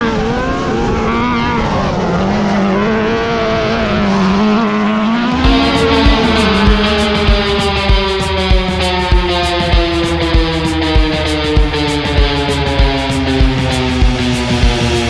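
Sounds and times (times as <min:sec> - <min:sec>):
race car engine revving: 0:00.0 - 0:15.0
music with drum beat: 0:05.4 - 0:15.0.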